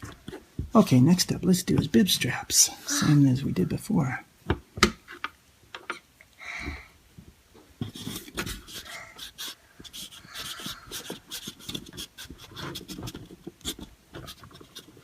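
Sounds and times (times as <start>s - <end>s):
clay clicks taps and rubbing: 0.0s - 0.9s, 1.7s - 2.0s, 4.5s - 6.0s, 7.2s - 15.0s
person breathing: 6.3s - 7.0s, 8.7s - 11.2s.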